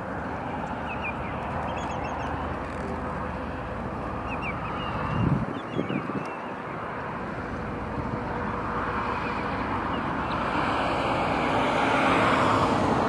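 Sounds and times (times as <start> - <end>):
high bird chirps: 0.8 - 2.4, 4.2 - 6.7.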